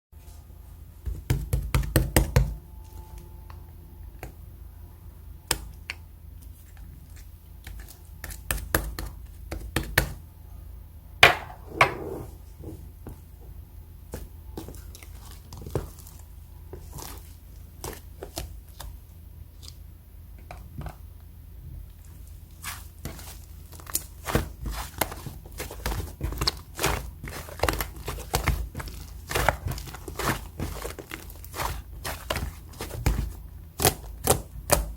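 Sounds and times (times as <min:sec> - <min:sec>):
slime squelch: 0:22.0 - 0:34.4
slime clicking and squishing: 0:22.6 - 0:34.9.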